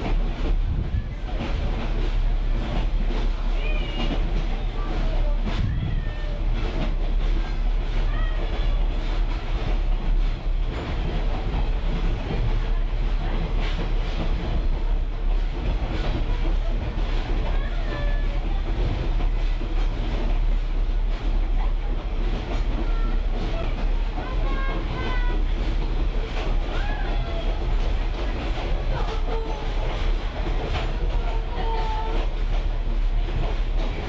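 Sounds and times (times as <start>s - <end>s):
train cars rumbling: 0.0s - 34.0s.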